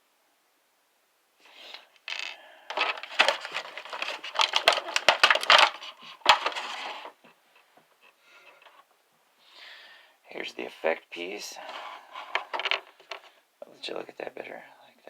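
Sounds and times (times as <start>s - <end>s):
plastic parts clicking and rattling: 1.6s - 7.2s, 12.2s - 13.4s.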